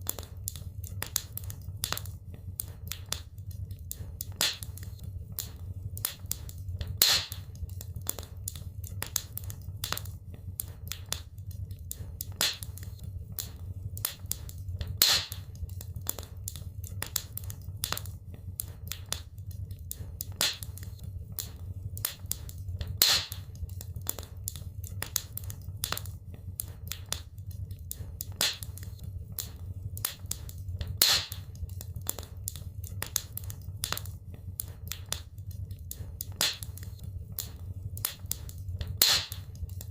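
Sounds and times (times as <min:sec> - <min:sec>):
wood fire crackling: 0:00.0 - 0:39.9
loud fire pop: 0:07.0 - 0:07.4, 0:15.0 - 0:15.4, 0:23.0 - 0:23.4, 0:31.0 - 0:31.4, 0:39.0 - 0:39.4.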